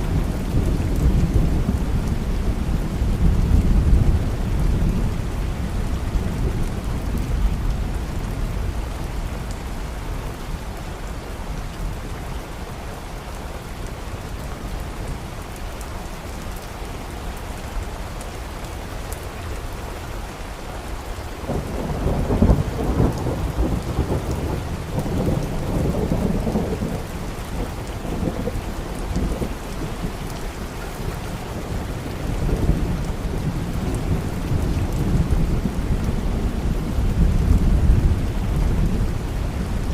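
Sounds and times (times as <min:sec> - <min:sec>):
steady rain: 0:00.0 - 0:39.9
thunder rumbling: 0:21.5 - 0:30.2.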